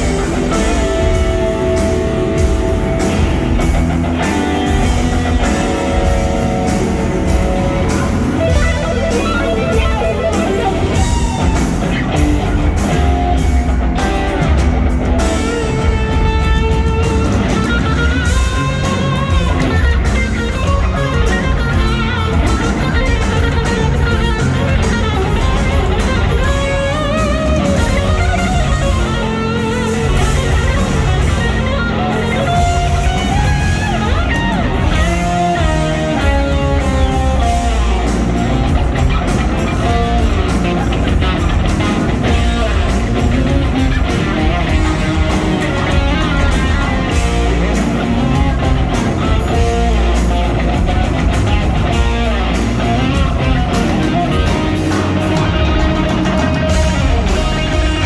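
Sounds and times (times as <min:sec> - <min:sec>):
electric guitar lead bending notes: 0:00.0 - 0:58.0
live rock band playing: 0:00.0 - 0:58.0.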